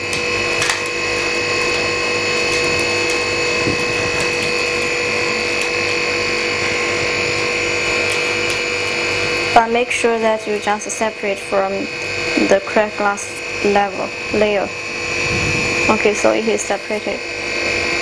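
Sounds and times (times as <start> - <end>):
high whine: 0.0 - 18.0
machine humming: 0.0 - 18.0.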